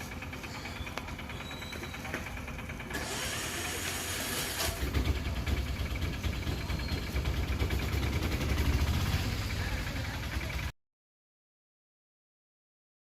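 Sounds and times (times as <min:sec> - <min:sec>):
engine idling: 0:00.0 - 0:10.8
burst of hiss: 0:03.0 - 0:04.8.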